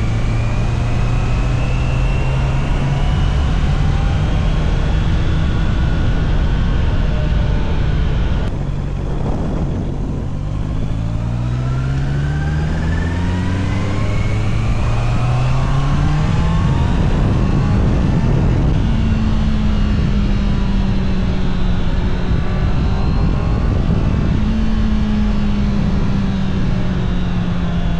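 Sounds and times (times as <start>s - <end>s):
motorcycle engine accelerating: 0.0s - 27.9s.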